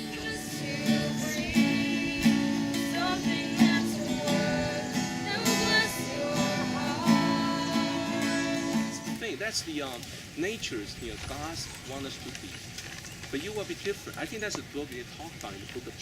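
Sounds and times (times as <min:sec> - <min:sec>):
strummed acoustic guitar music: 0:00.0 - 0:09.3.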